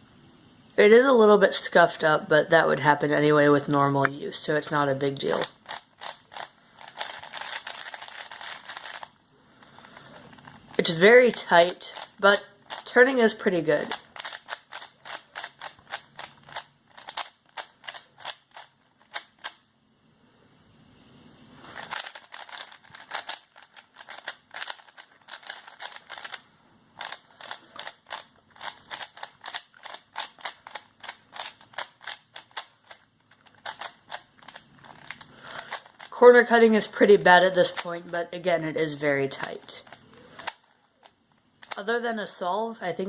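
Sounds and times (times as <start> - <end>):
plastic puzzle cube clicking: 5.3 - 9.2, 10.1 - 12.9, 13.8 - 19.7, 21.7 - 26.4, 27.0 - 36.1, 36.8 - 38.0, 39.3 - 41.8.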